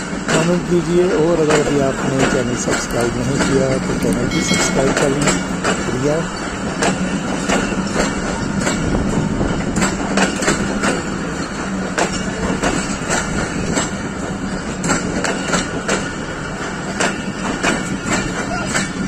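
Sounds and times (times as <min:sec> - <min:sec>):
wheels clacking over rail joints: 0:00.0 - 0:19.0.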